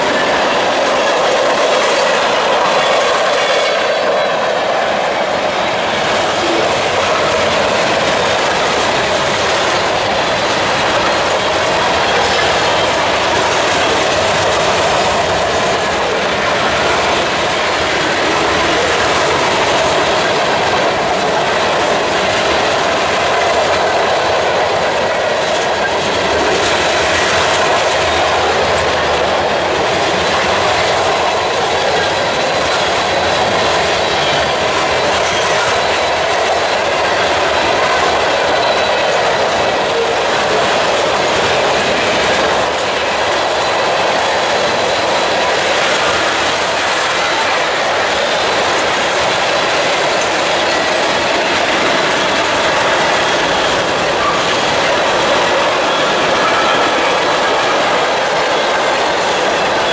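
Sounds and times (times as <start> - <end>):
freight train wheels on rails: 0.0 - 59.9.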